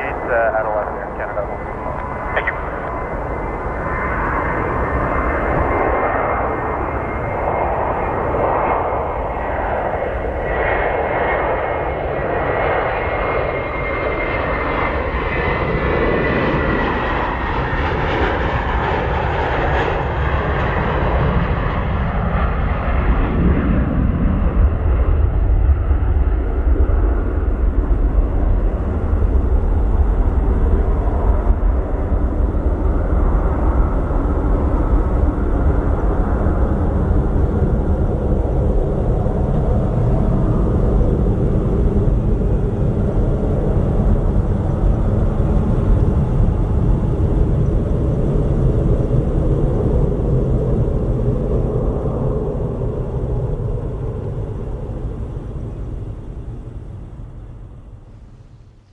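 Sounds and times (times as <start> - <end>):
low rumble: 0.0 - 11.7
high engine whine: 0.0 - 58.9
jet airliner passing: 0.0 - 58.9.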